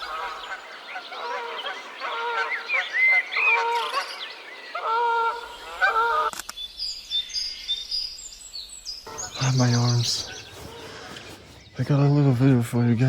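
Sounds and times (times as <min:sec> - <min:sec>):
geese honking: 0:00.0 - 0:06.3, 0:09.1 - 0:12.4.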